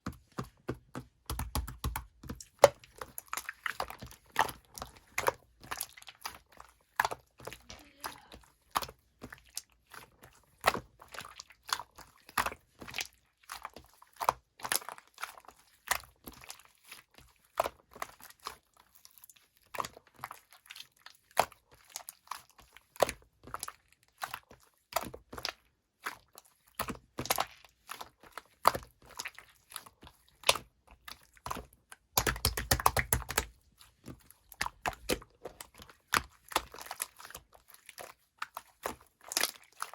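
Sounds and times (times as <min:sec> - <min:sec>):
slime squeezed clicking and popping: 0:32.1 - 0:33.5.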